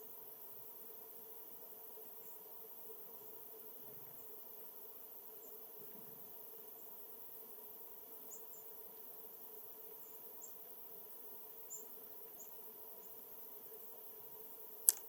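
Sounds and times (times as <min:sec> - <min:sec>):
small birds chipping: 0:08.2 - 0:08.8, 0:09.9 - 0:10.8, 0:11.4 - 0:13.5.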